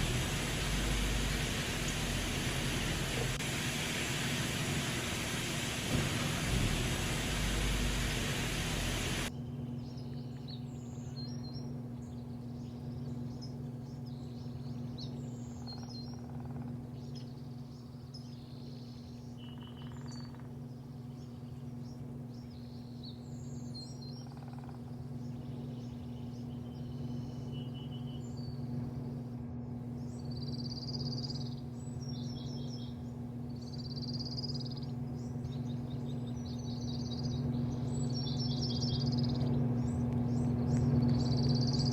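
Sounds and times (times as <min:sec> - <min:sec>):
loud rushing noise: 0:00.0 - 0:09.3
small birds chirping: 0:00.0 - 0:16.2, 0:29.9 - 0:41.9
low machine hum: 0:00.0 - 0:41.9.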